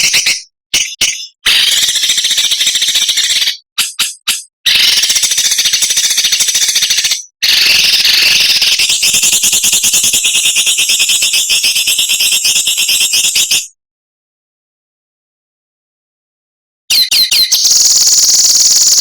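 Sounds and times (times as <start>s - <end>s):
songbird rattling chatter: 0.0s - 9.5s.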